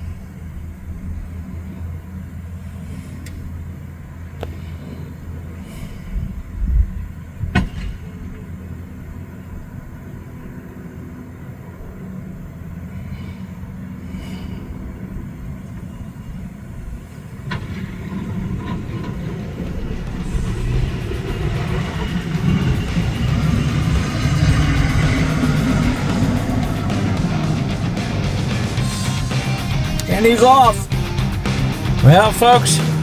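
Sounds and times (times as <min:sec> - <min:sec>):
truck engine running: 0:17.6 - 0:33.0.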